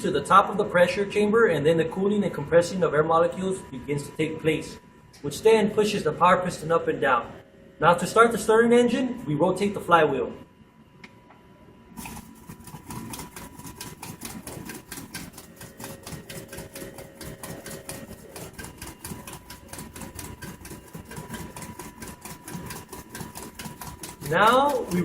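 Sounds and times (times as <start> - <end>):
small engine clattering rhythmically: 12.0 - 25.0.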